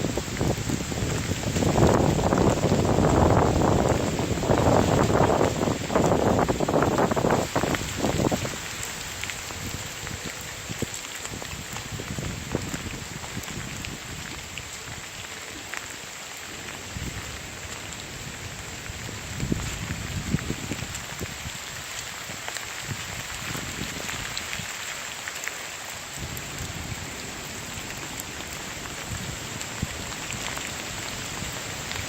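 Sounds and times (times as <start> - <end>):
wind buffeting microphone: 0.0 - 15.1, 16.8 - 24.7
raindrops ticking close by: 0.0 - 32.0
steady rain: 0.0 - 32.0.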